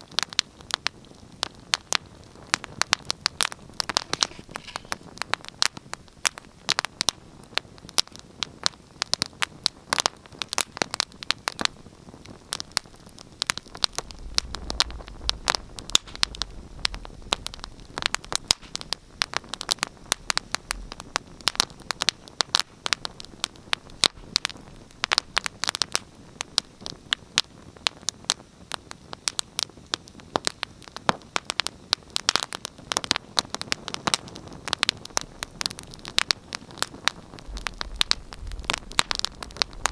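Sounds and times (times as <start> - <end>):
wood fire crackling and popping: 0.0 - 39.9
faint low rumble: 12.5 - 25.6, 34.8 - 39.9.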